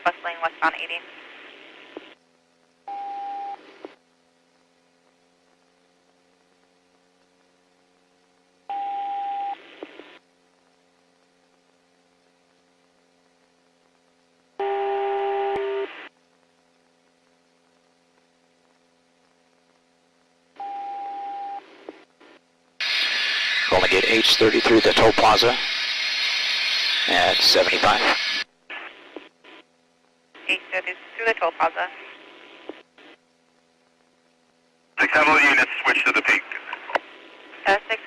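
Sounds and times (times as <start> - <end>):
faint steady hum: 0.0 - 38.0
radio static hiss bursts: 21.6 - 29.7, 30.4 - 33.3, 35.0 - 38.0
radio beep tone: 22.8 - 25.8, 26.9 - 28.4.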